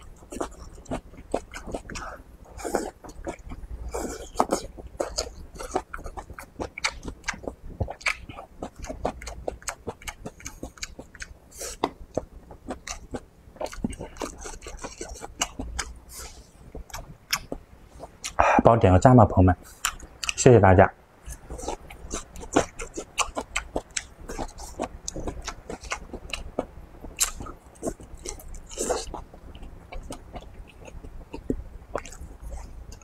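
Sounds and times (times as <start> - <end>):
wet chewing and lip-smacking: 0.0 - 18.4, 19.6 - 20.4, 21.2 - 33.0.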